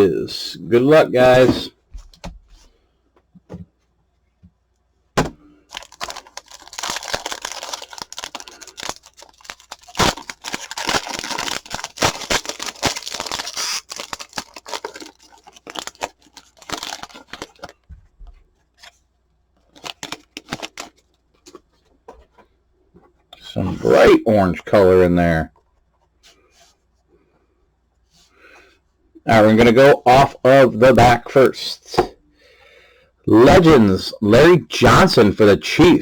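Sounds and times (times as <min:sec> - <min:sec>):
foil wrapper tearing and crinkling: 0:05.7 - 0:17.8, 0:19.7 - 0:21.1.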